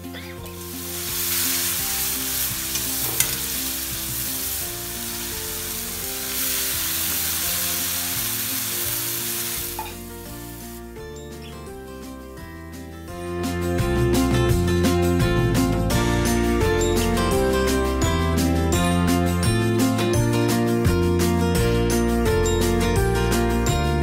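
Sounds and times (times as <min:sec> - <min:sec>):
soft background music: 0:00.0 - 0:24.0
spices sizzling in hot oil: 0:00.3 - 0:10.9
steel spatula scraping a pan: 0:02.7 - 0:03.8.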